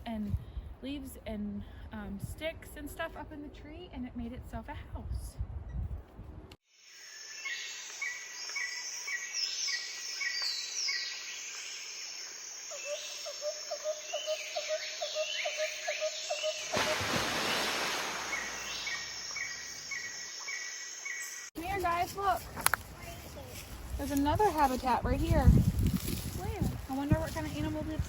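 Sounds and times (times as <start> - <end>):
birds singing and calling: 7.4 - 16.9, 18.2 - 28.0.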